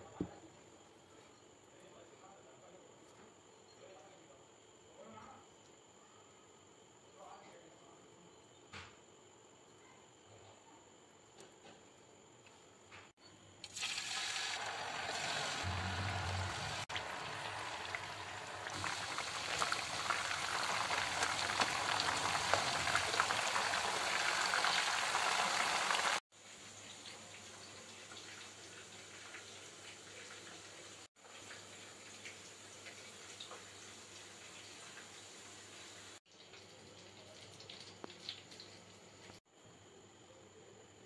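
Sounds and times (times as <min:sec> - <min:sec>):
chicken sizzling in oil: 0:13.6 - 0:38.8.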